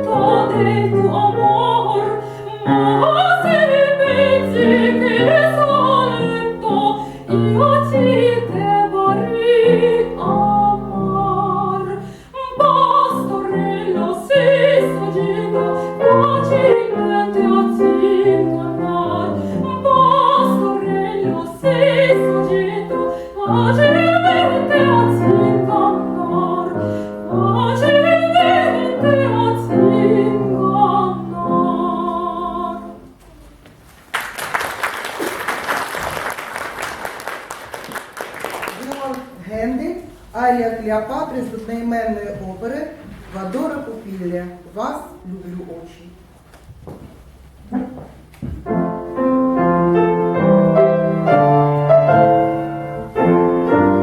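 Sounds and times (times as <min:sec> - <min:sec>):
piano accompaniment: 0:00.0 - 0:33.2, 0:47.1 - 0:54.0
woman singing opera: 0:00.0 - 0:33.2.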